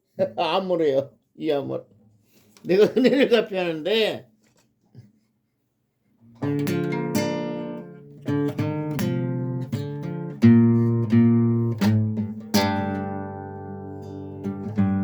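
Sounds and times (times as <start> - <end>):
acoustic guitar strumming chords: 6.3 - 15.0.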